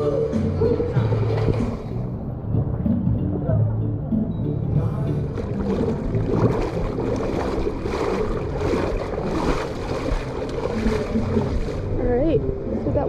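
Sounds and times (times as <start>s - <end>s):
water rushing and splashing: 0.8s - 2.0s, 5.2s - 13.0s.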